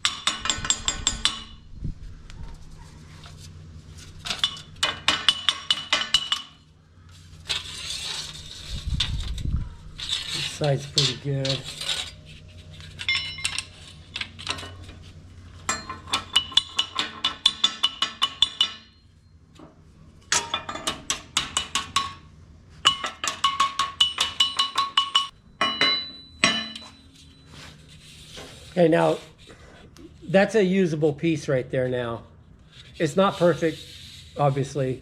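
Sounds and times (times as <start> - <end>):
hammer tapping metal: 0.0 - 1.7, 4.4 - 6.6, 15.7 - 19.0, 20.3 - 27.0.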